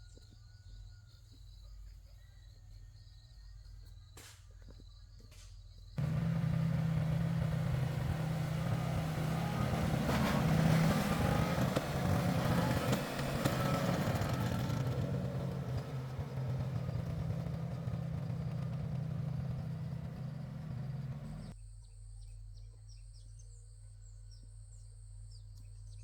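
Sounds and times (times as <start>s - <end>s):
faint insects: 0.0s - 26.0s
engine running loud: 6.0s - 21.5s.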